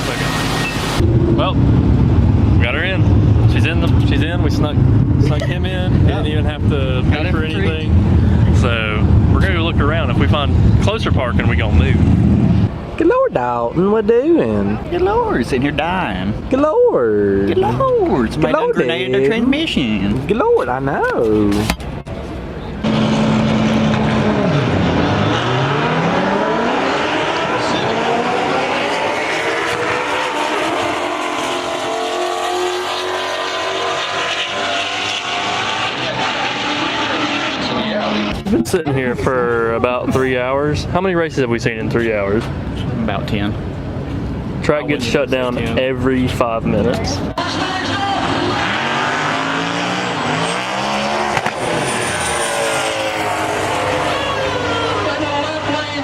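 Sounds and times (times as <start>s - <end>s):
race car engine revving: 0.0s - 13.0s, 22.8s - 44.7s, 45.8s - 56.0s
sharp crack: 51.3s - 51.7s.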